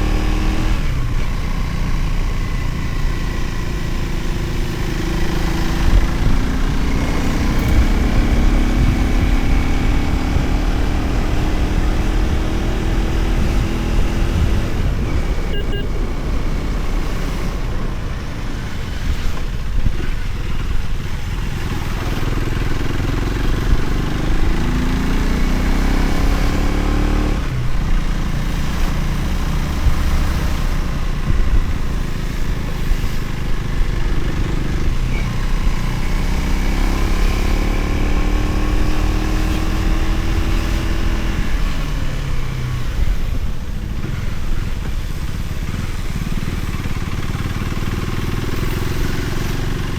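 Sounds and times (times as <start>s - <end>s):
motorcycle engine accelerating: 0.0s - 49.9s
wind and road noise: 0.0s - 49.9s.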